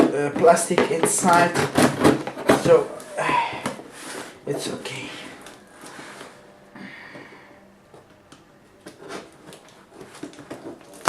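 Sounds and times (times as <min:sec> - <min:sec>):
cardboard parcel rustling: 0:00.0 - 0:06.5, 0:08.8 - 0:11.0.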